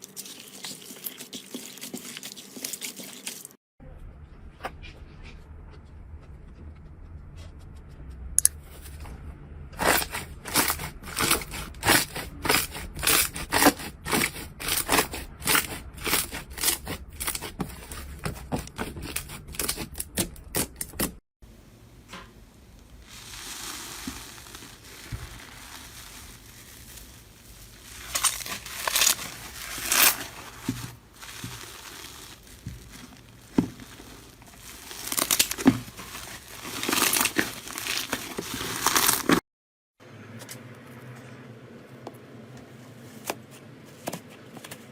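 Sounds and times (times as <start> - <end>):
soft rustling of slime: 22.6 - 39.4.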